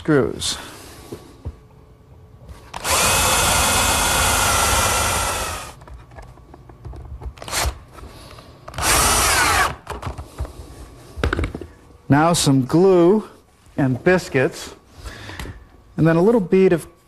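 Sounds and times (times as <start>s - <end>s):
electric drill boring into wood: 2.8s - 5.8s, 8.8s - 9.8s.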